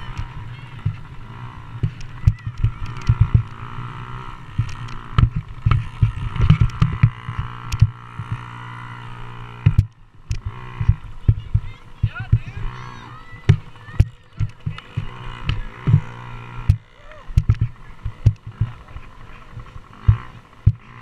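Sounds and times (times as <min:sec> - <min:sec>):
dirt bike engines running: 0:00.0 - 0:21.0
low thumps on microphone: 0:13.4 - 0:18.8.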